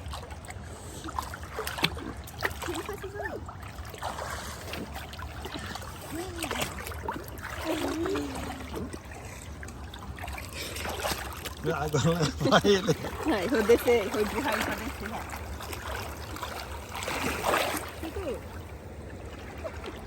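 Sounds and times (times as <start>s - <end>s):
river water running over rocks: 4.1s - 20.0s.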